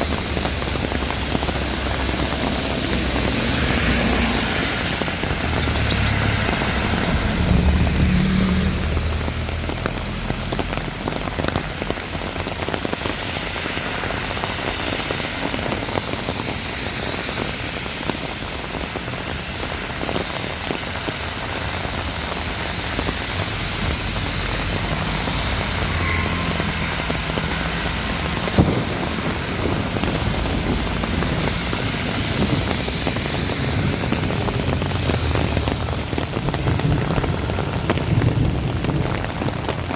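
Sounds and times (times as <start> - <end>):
low rumble: 0.0 - 11.8, 23.4 - 39.5
heavy rain falling: 0.0 - 39.9.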